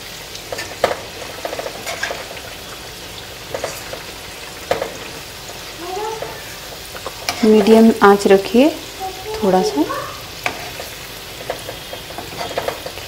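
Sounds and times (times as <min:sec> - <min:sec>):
food deep-frying in oil: 0:00.0 - 0:13.0
utensil clicking against pan: 0:10.4 - 0:13.0.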